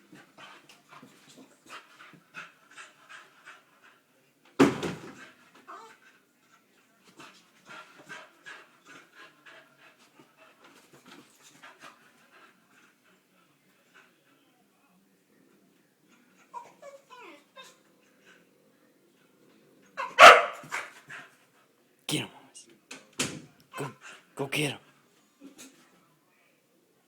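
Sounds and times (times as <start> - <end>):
dog panting: 0.0 - 4.2, 5.1 - 14.4, 23.7 - 24.4.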